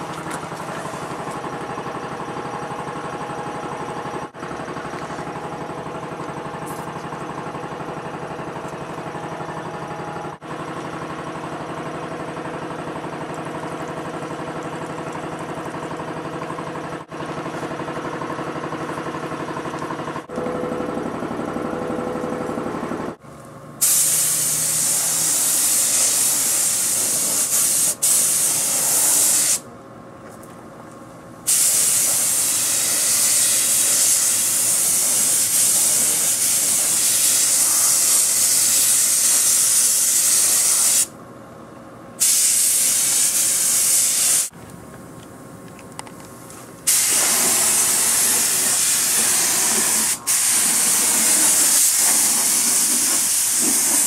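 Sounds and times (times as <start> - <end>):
paint spray hissing: 23.8 - 29.6, 31.5 - 41.1, 42.2 - 44.5, 46.9 - 54.0.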